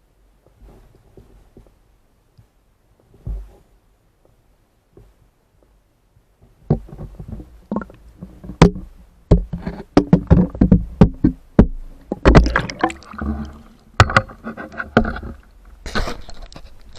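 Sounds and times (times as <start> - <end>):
knocks and bumps underwater: 6.4 - 16.8.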